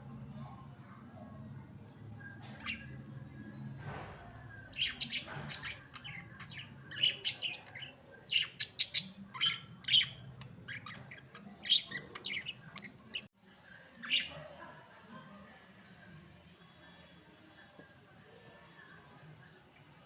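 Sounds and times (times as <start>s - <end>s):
budgerigars chirping: 4.7s - 13.3s.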